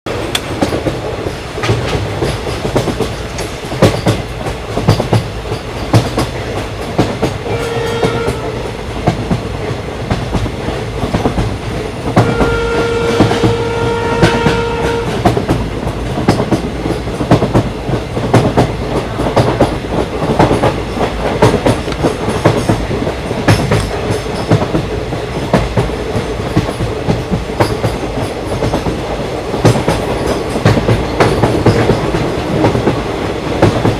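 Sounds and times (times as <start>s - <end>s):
train wheels clattering on rails: 0.1s - 33.9s
locomotive horn blasts: 7.4s - 8.6s, 12.2s - 15.2s.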